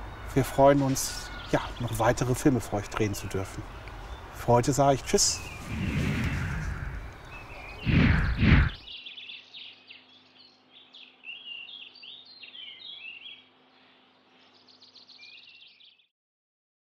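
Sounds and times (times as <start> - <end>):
songbirds chirping: 0.0 - 16.1
dull burst of noise: 5.1 - 8.8.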